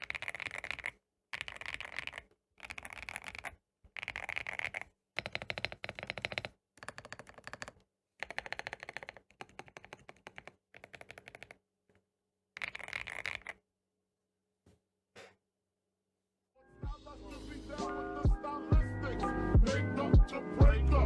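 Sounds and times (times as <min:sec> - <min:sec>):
mechanical keyboard key clacks: 0:00.0 - 0:11.5.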